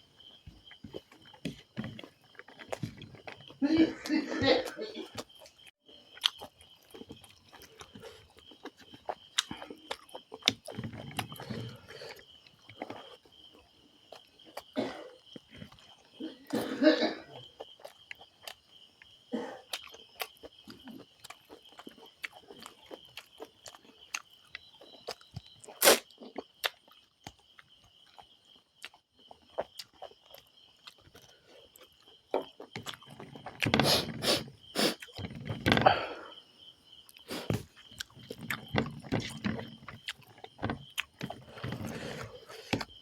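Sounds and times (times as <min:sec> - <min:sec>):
chewing and wet mouth clicks: 0:06.2 - 0:07.9.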